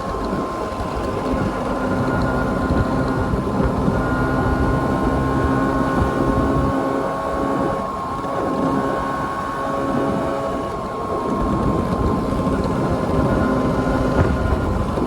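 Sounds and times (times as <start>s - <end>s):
scooter engine running: 0.0s - 15.0s
wind rumble: 0.0s - 15.0s.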